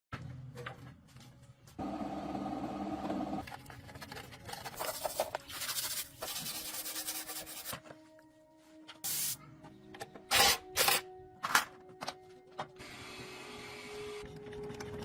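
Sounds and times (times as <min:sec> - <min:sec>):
rough rubbing and sanding: 0:04.8 - 0:07.7.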